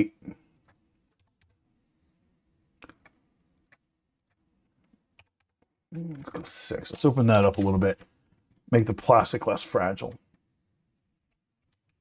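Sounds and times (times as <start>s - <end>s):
computer keys clicking: 0.5s - 1.6s, 2.8s - 4.4s, 5.1s - 5.7s.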